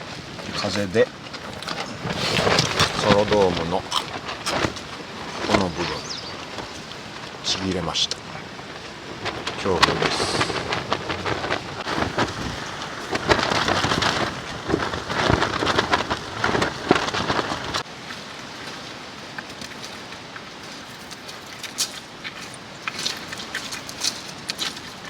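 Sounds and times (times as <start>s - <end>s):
heavy rain with gusting wind: 0.0s - 25.0s.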